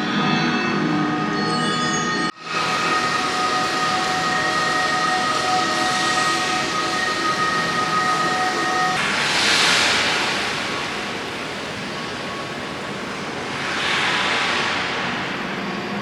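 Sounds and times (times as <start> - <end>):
steady high tone: 0.0 - 9.0.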